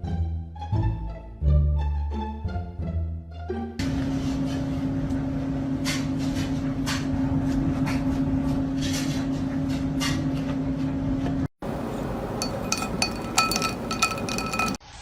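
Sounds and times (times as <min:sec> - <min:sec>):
steady mechanical hum: 0:03.8 - 0:14.8.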